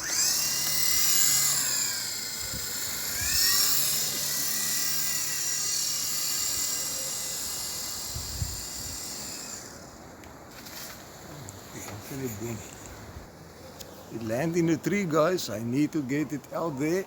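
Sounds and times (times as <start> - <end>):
toy helicopter motors whining: 0.0 - 10.2.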